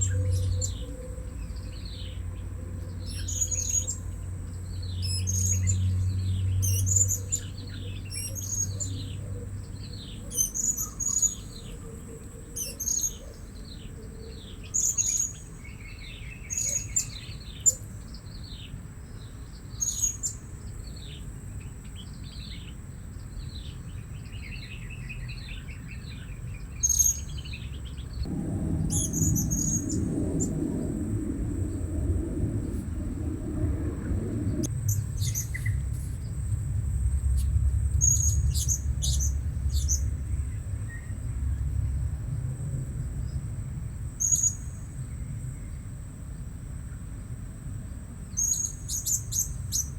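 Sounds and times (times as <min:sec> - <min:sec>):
low rumble: 0:27.8 - 0:45.8.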